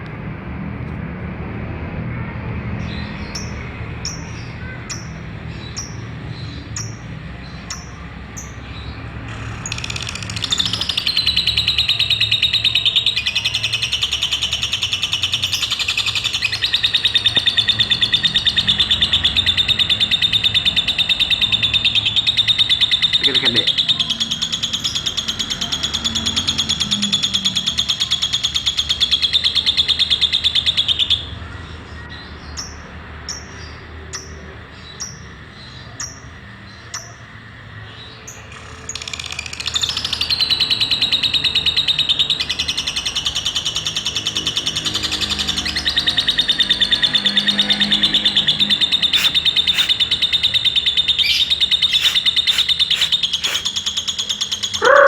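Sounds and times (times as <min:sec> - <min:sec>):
lovebird chattering trill: 0:49.0 - 0:53.8
short bird chirps: 0:49.1 - 0:53.7.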